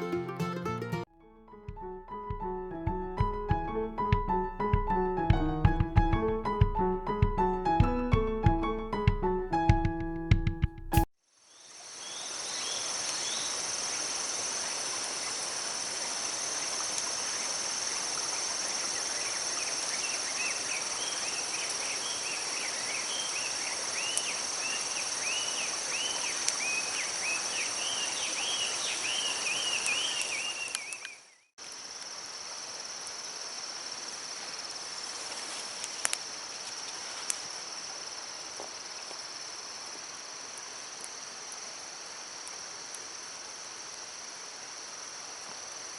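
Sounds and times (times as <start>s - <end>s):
insects trilling: 11.3s - 45.9s.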